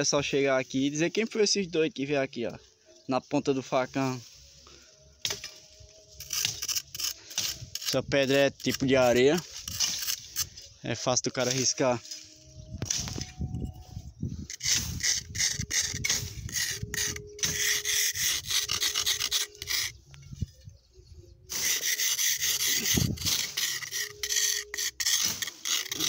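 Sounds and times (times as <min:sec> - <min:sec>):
machete scratching sandstone: 0:05.2 - 0:10.7, 0:11.4 - 0:13.6, 0:14.4 - 0:20.5, 0:21.5 - 0:26.0.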